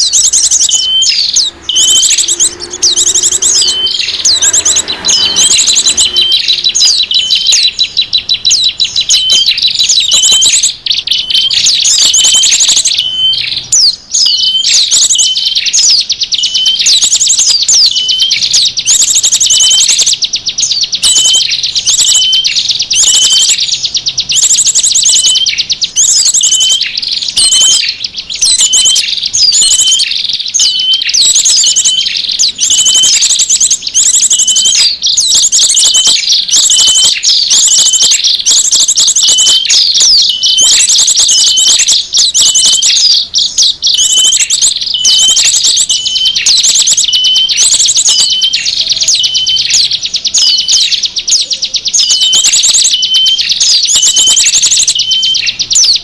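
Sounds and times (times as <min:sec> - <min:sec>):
repeating short bird call: 0:00.0 - 0:10.6
songbirds chirping and trilling: 0:00.0 - 0:56.0.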